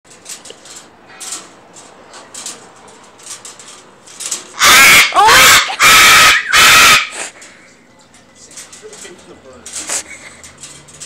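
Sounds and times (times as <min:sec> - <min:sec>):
parrots screeching: 0:04.5 - 0:07.4
high-pitched parrot calls: 0:04.6 - 0:07.3.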